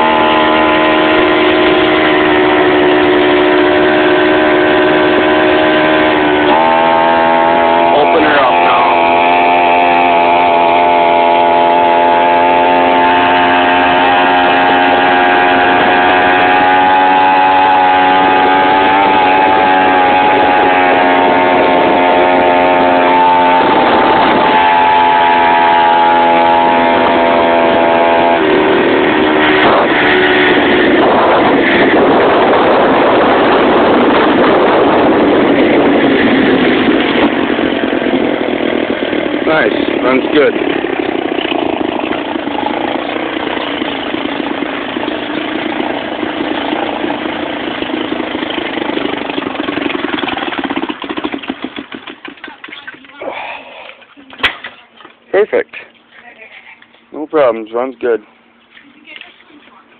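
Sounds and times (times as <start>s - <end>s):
two-stroke engine running: 0.0s - 59.9s.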